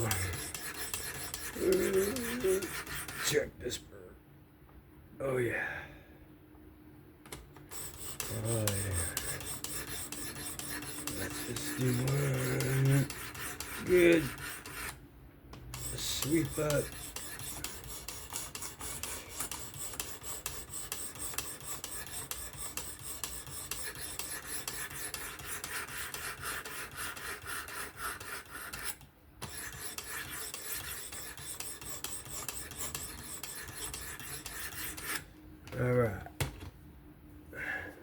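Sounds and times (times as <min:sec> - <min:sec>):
knife blade rasping on sharpening stone: 0:00.0 - 0:03.3, 0:07.7 - 0:15.0, 0:15.7 - 0:35.2.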